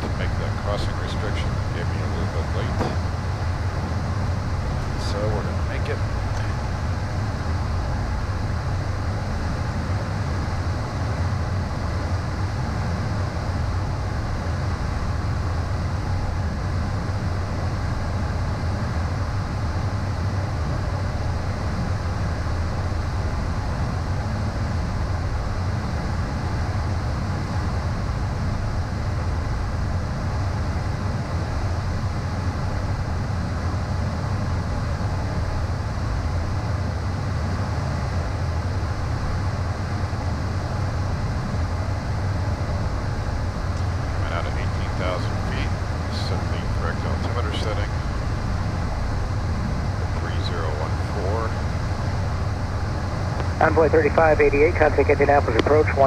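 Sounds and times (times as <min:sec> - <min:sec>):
jet cockpit engine drone: 0:00.0 - 0:56.0
faint high steady tone: 0:43.6 - 0:51.6.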